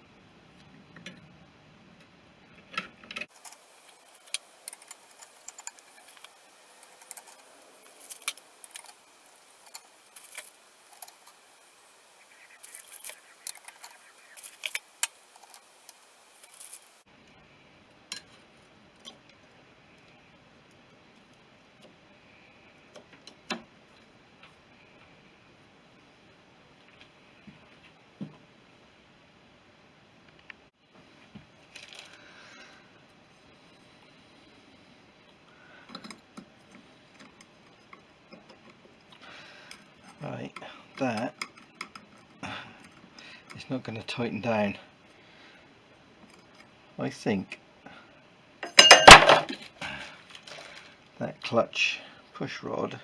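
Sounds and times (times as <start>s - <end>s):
small metal parts clinking: 3.2s - 11.9s, 12.6s - 17.0s, 48.6s - 49.7s.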